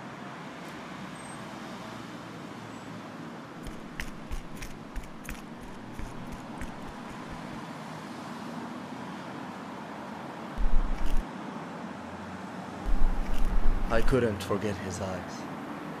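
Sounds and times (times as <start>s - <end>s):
traffic hum: 3.3s - 7.6s, 12.8s - 14.4s
footsteps on pavement: 3.6s - 7.6s, 10.6s - 11.2s, 12.9s - 14.2s.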